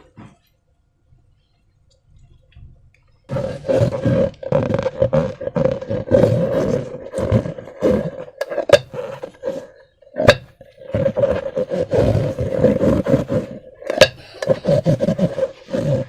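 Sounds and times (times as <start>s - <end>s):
squeezed slime balloons squealing: 3.3s - 9.6s.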